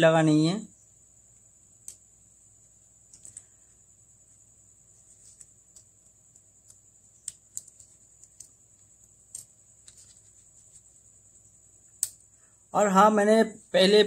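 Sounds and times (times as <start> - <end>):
faint high-pitched whine: 0.0 - 14.0
small tools clicking on plastic parts: 1.8 - 2.0, 3.1 - 3.5, 5.3 - 10.2.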